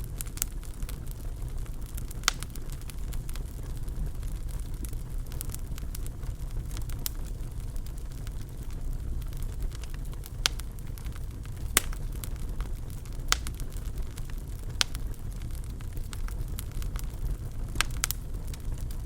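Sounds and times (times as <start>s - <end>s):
fire popping and crackling: 0.0s - 19.0s
wood fire flames rumbling: 0.0s - 19.0s.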